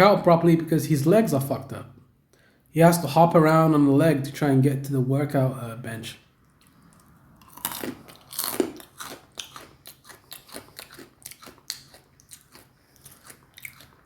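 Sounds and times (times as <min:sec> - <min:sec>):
person chewing crunchy food: 0:06.5 - 0:14.0.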